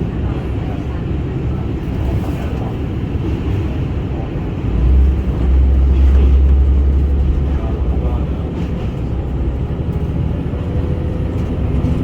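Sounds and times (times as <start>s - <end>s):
diesel railcar rumbling on rails: 0.0s - 12.0s.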